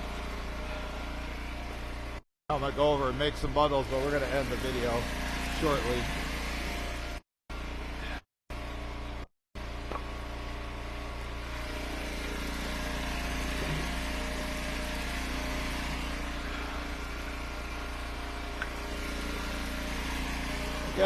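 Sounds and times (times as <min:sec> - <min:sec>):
log splitter engine idling: 0:09.9 - 0:21.0.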